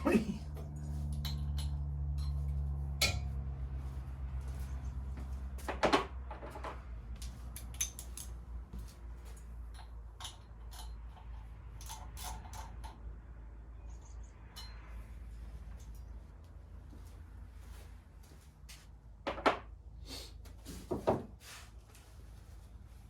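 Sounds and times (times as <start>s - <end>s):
metal tools clinking: 0.0s - 3.3s, 9.7s - 13.0s
steady low hum: 0.0s - 5.7s.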